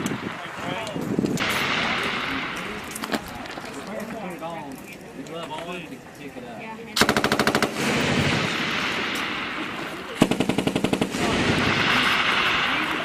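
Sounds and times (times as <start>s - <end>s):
machine gun bursts: 7.0s - 8.3s, 10.2s - 12.6s.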